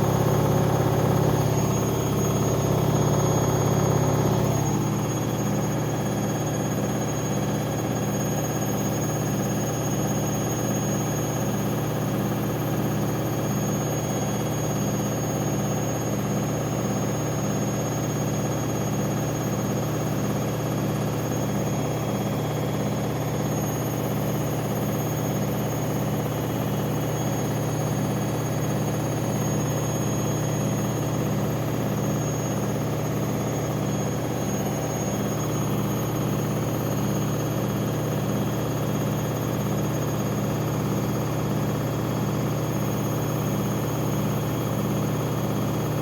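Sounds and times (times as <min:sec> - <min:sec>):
washing machine spinning: 0:00.0 - 0:46.0.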